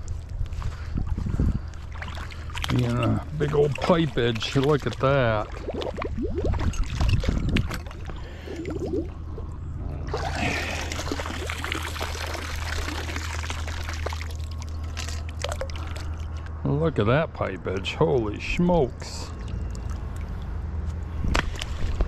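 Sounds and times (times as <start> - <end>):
water pouring out of metal pipe: 10.1 - 16.2.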